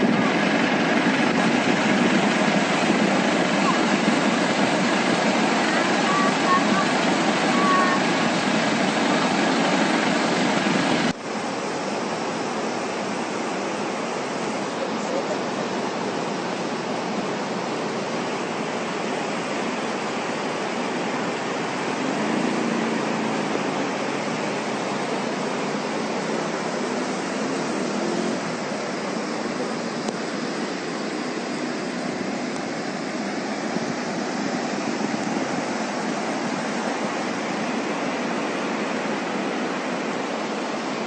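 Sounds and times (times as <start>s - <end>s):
floodwater rushing: 0.0s - 41.0s.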